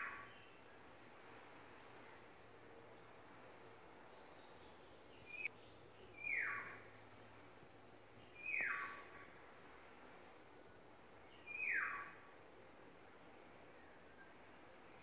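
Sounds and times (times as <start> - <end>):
songbird harsh down-slurred calls: 6.1 - 6.8, 8.3 - 9.1, 11.4 - 12.2.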